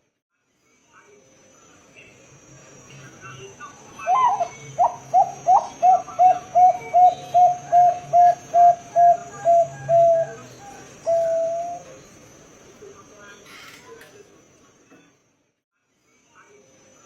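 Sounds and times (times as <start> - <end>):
dove cooing: 3.9 - 12.1.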